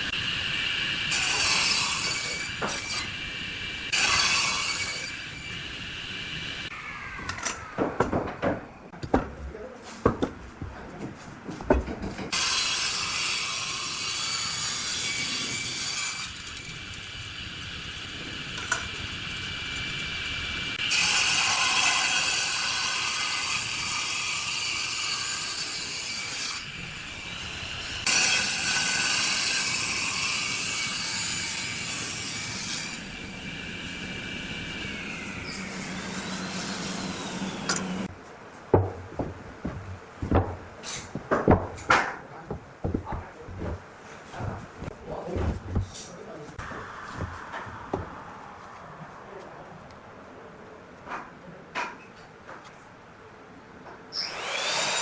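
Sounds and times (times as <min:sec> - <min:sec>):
power tool sanding wood: 0:32.0 - 0:38.1.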